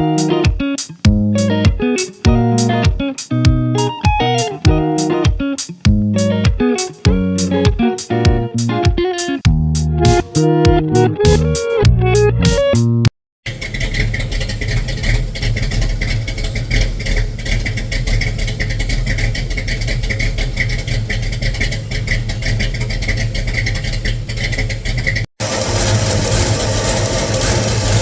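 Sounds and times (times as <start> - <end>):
electric guitar music: 0.0 - 13.1
car engine running: 13.5 - 28.0.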